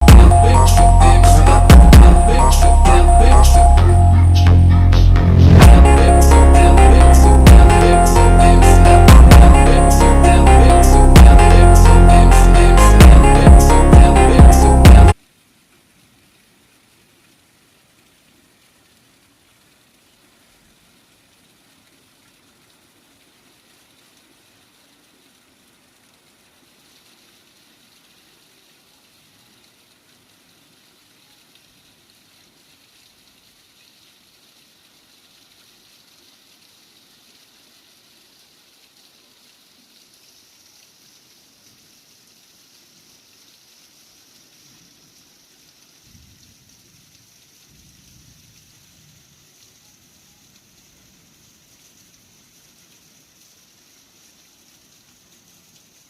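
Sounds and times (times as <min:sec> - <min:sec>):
heavy rain hissing: 0:00.0 - 0:15.2, 0:35.6 - 0:56.0
low rumble: 0:00.1 - 0:15.1.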